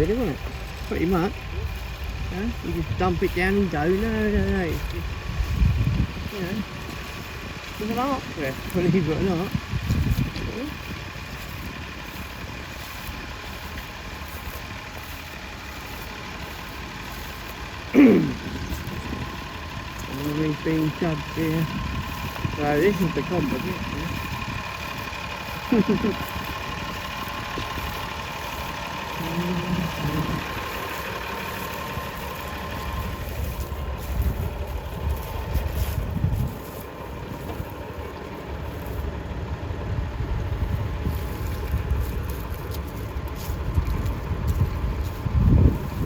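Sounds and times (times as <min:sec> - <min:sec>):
tractor engine running: 0:00.0 - 0:46.0.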